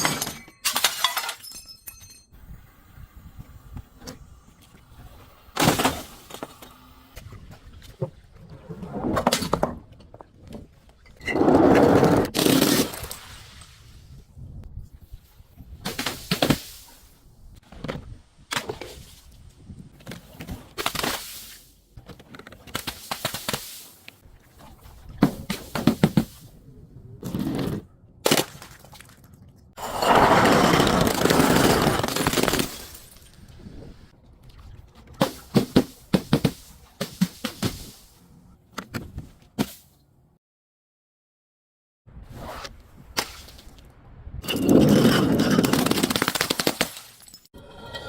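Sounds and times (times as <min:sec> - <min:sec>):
crunchy objects being crushed: 0:30.4 - 0:33.1.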